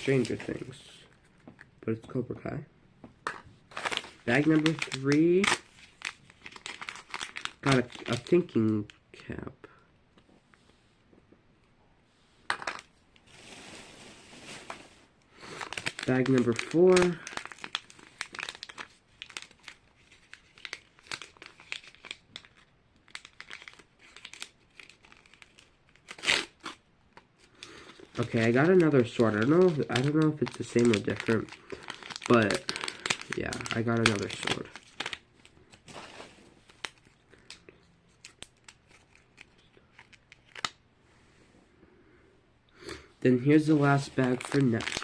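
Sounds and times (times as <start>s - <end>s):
plastic bag crinkling: 3.7s - 8.5s, 13.3s - 26.5s, 27.5s - 40.7s, 43.6s - 45.0s.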